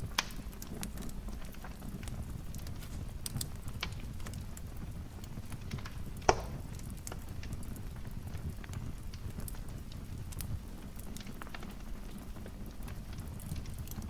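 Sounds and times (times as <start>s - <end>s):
low rumble of flames: 0.0s - 14.0s
wood fire crackling: 0.0s - 14.0s
sharp loud pop: 6.3s - 6.6s.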